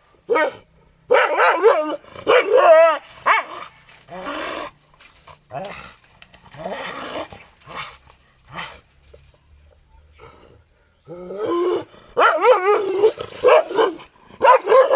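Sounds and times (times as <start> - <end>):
dog barking: 0.3 - 3.8, 12.2 - 14.9.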